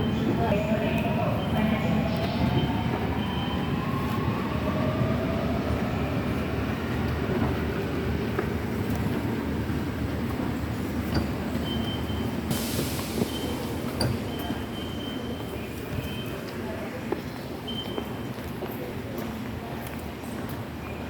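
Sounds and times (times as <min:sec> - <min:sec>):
subway train rumble: 0:00.0 - 0:21.0
burst of hiss: 0:12.5 - 0:13.6.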